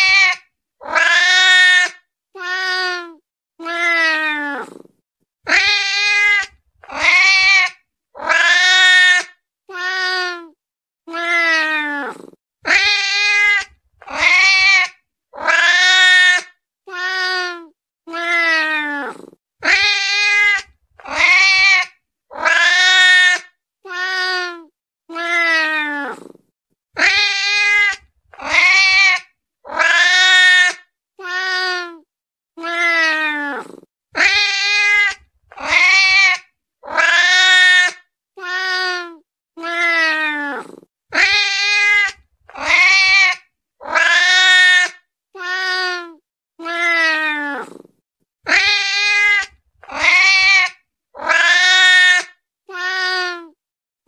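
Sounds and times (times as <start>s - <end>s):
cat meowing: 32.6s - 47.8s, 48.5s - 53.5s.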